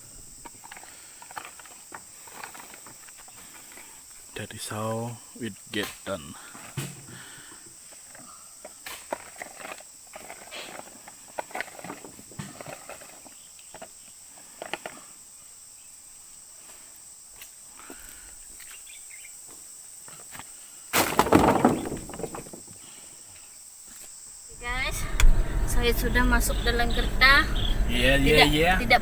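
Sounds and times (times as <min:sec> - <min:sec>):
high-pitched insect chorus: 0:00.0 - 0:29.0.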